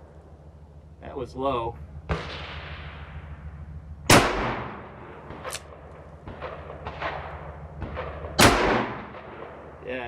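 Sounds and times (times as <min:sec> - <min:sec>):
revolver gunshot echoing: 0:02.0 - 0:09.7.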